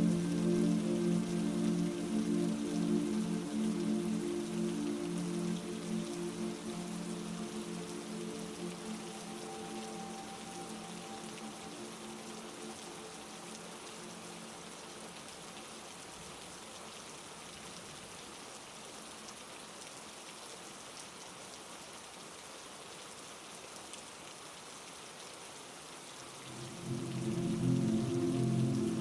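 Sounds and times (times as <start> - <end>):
low sustained musical tone: 0.0 - 15.8, 26.3 - 29.0
heavy rain falling: 0.0 - 19.0, 26.1 - 29.0.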